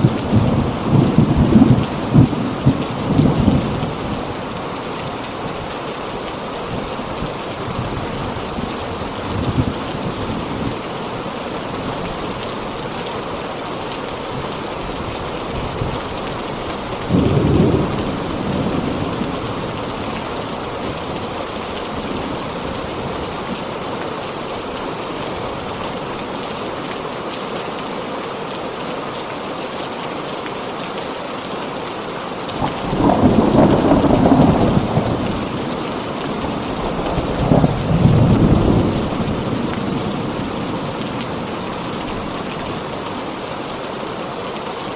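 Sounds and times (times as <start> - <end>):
thunder rumbling: 0.0 - 4.4, 17.0 - 20.0, 32.6 - 42.9
heavy rain falling: 0.0 - 44.9.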